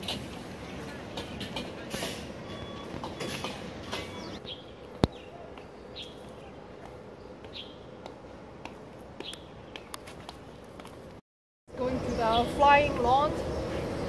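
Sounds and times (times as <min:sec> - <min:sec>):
outdoor background noise: 0:00.0 - 0:14.0
bird chirping: 0:02.4 - 0:07.9.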